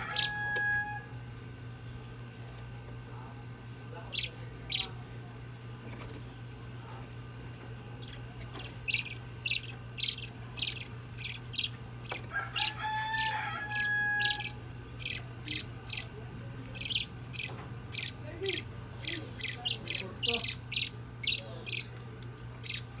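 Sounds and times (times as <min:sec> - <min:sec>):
bird chick cheeping: 0:00.0 - 0:01.0, 0:08.0 - 0:16.1, 0:16.8 - 0:21.9, 0:22.6 - 0:22.9
held chick tone: 0:00.0 - 0:01.1, 0:08.0 - 0:16.2
steady low hum: 0:00.0 - 0:23.0.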